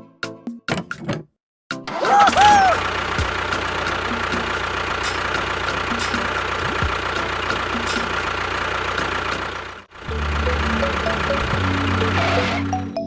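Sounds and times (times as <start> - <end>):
small motor ticking: 2.5 - 12.8
music with low notes: 9.0 - 13.0.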